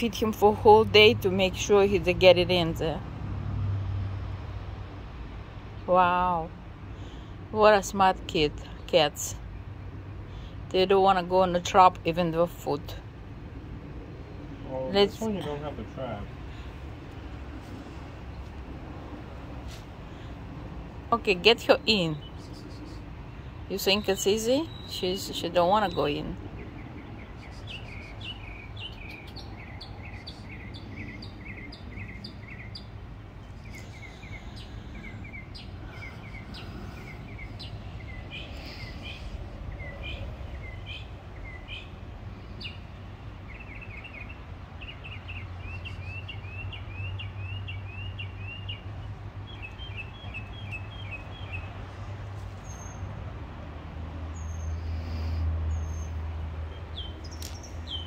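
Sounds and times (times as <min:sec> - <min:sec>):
birds chirping: 0:14.0 - 0:18.8, 0:19.5 - 0:53.2, 0:54.3 - 0:58.0.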